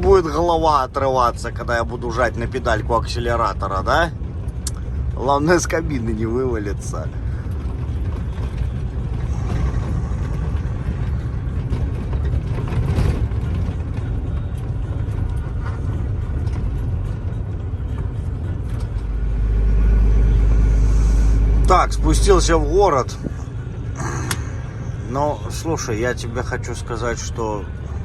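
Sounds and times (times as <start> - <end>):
truck engine and road noise: 0.0 - 28.0.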